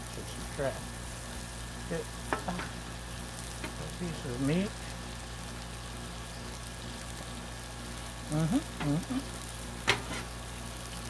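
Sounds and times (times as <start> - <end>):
meat sizzling on a griddle: 0.0 - 11.0.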